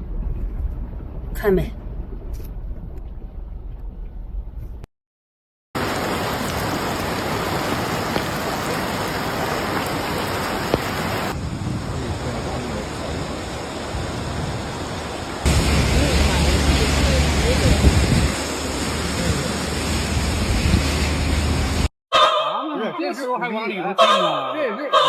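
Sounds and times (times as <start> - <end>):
low rumble: 0.0 - 4.9, 11.2 - 21.9
heavy rain pouring: 5.8 - 21.9.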